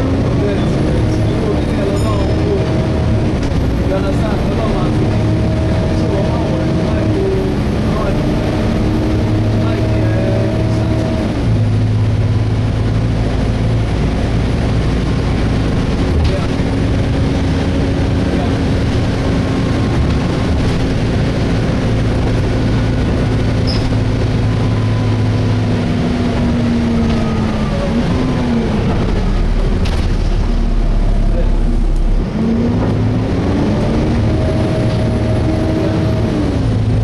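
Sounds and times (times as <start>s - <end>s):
bus diesel engine drone: 0.0s - 37.0s.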